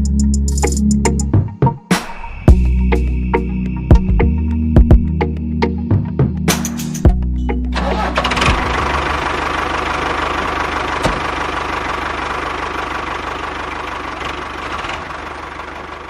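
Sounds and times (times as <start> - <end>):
background music: 0.0 - 9.3
small tractor engine running: 7.7 - 16.0.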